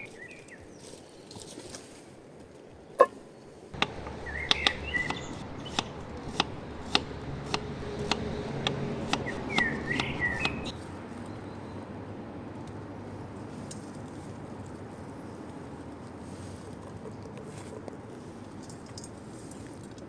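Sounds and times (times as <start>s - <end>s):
bird chirping: 3.8s - 10.7s
knife chopping on cutting board: 3.8s - 10.7s.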